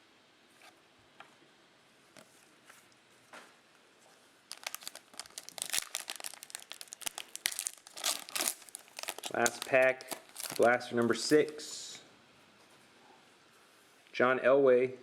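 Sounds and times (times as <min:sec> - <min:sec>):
foil wrapper tearing and crinkling: 0:04.5 - 0:11.6.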